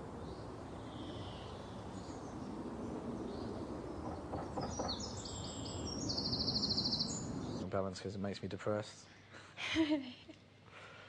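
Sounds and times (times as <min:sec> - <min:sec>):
steady low background noise: 0:00.0 - 0:11.0
bird chirping: 0:00.1 - 0:07.7.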